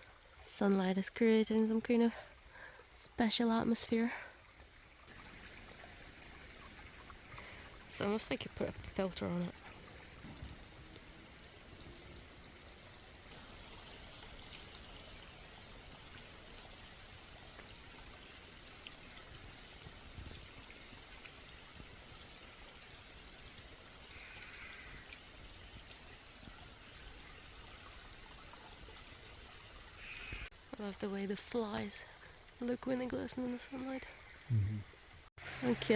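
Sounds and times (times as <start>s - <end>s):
stream flowing: 0.0s - 35.9s.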